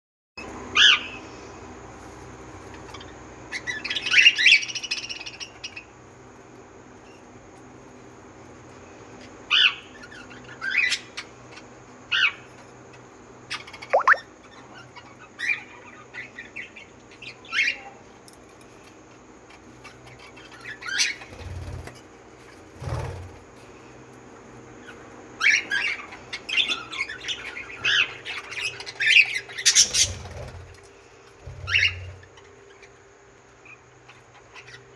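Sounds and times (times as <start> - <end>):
birds chirping and squawking: 19.6 - 23.4, 24.8 - 30.8, 31.4 - 34.9.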